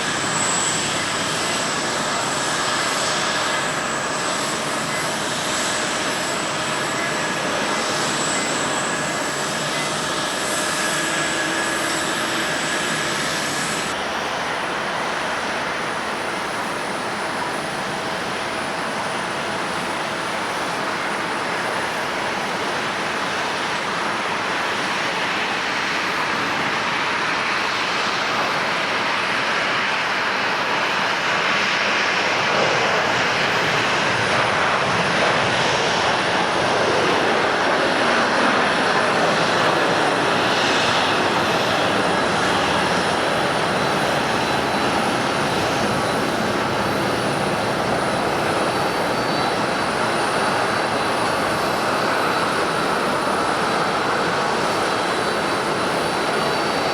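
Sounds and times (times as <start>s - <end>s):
jet engine whine: 0.0s - 56.9s
jet engine rushing noise: 23.3s - 56.9s.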